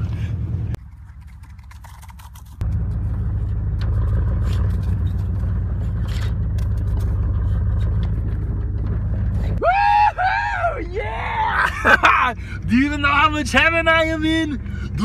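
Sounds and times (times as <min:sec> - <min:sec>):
truck rumbling: 0:00.0 - 0:15.0
clicks and scraping: 0:00.8 - 0:09.6.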